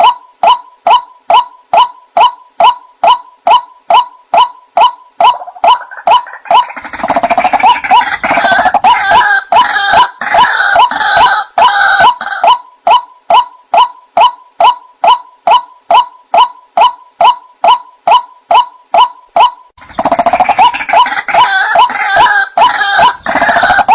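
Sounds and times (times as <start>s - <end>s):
waterhen harsh croaks: 5.2s - 13.1s, 19.8s - 23.9s.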